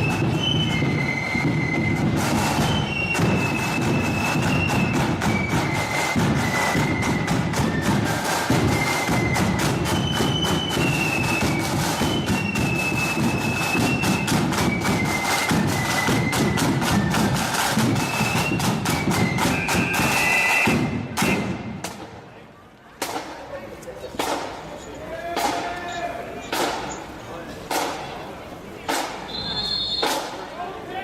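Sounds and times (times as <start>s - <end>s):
high flute melody: 0.0s - 21.8s, 29.2s - 30.3s
rapid snare drums: 0.0s - 22.2s, 23.0s - 23.5s, 24.1s - 24.7s, 25.3s - 25.8s, 26.4s - 27.0s, 27.7s - 28.2s, 28.8s - 30.5s.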